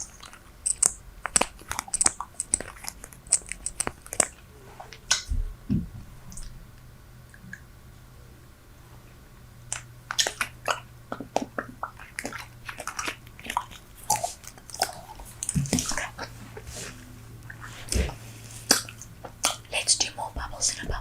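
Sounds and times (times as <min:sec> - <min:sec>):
bubble gum chewing: 0:00.0 - 0:05.4, 0:09.7 - 0:21.0.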